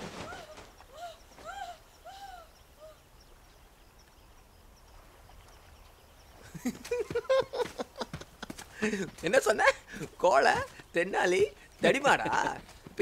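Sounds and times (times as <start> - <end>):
bird calls rising and falling: 0.0 - 12.6
small birds twittering: 0.0 - 13.0.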